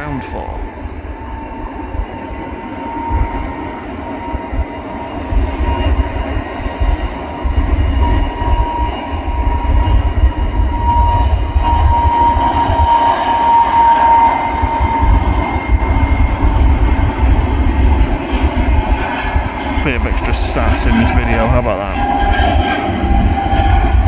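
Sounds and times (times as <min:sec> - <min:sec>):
jet engines whining: 0:00.0 - 0:24.0
low rumble: 0:00.0 - 0:24.0.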